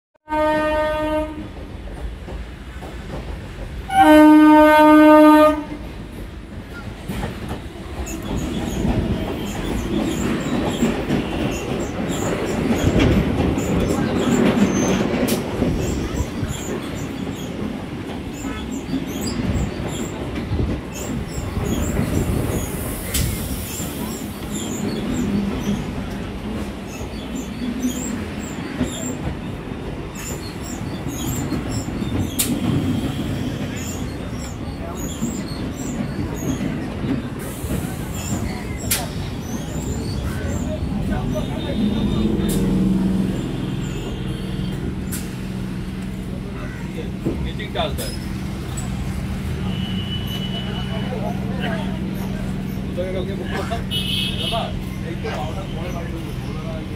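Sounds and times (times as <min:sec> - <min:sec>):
train horn blast: 0:00.3 - 0:01.6, 0:03.9 - 0:05.8, 0:41.6 - 0:44.9
train wheels rumbling and clacking: 0:00.3 - 0:56.9.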